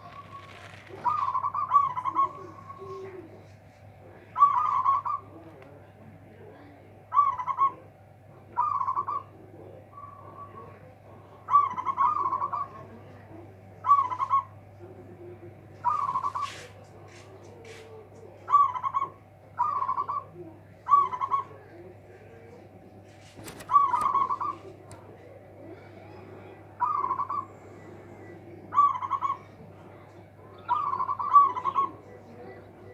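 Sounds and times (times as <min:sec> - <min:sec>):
dove cooing: 0:00.0 - 0:05.8, 0:06.4 - 0:32.9.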